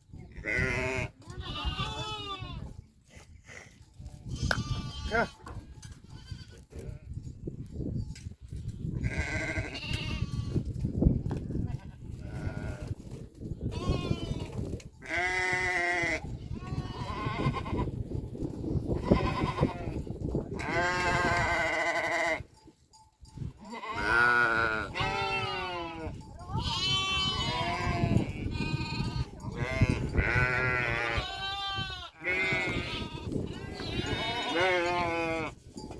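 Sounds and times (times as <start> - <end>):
livestock bleating: 0.3 - 2.7, 4.3 - 7.1, 9.0 - 10.6, 11.6 - 13.0, 13.7 - 17.9, 19.0 - 22.5, 23.6 - 35.6.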